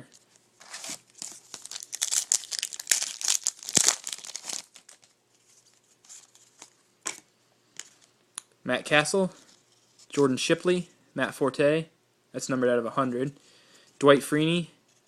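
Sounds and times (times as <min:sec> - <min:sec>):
wrapper crinkling: 0:00.1 - 0:06.7.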